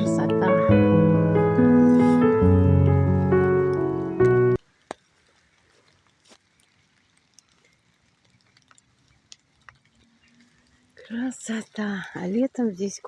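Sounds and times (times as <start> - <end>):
piano music: 0.0 - 4.6
faint ticks: 4.2 - 12.4.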